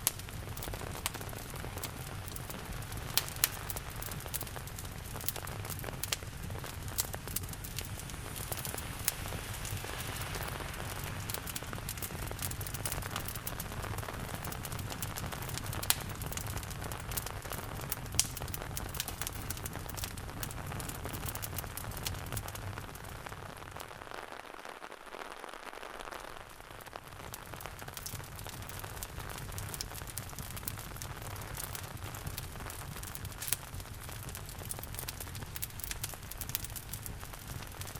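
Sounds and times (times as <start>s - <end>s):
rain hiss: 0.0s - 16.1s
fire pops: 0.0s - 37.9s
wood fire crackling: 0.0s - 37.9s.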